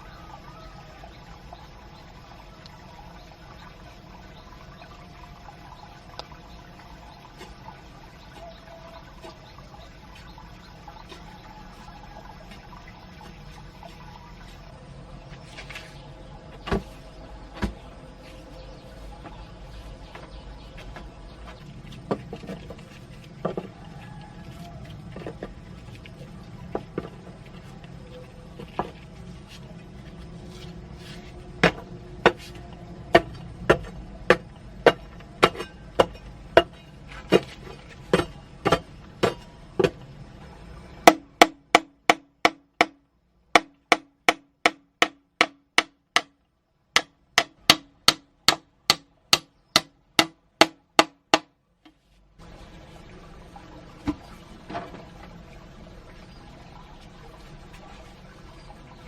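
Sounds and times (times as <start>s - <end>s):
hammering blows: 31.2s - 40.1s, 47.0s - 51.5s.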